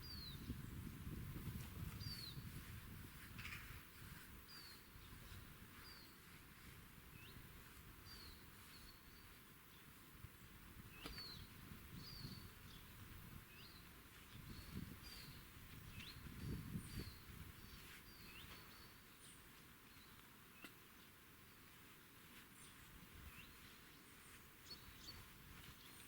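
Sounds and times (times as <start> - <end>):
small songbird chirping: 0.0 - 21.8, 22.4 - 26.0.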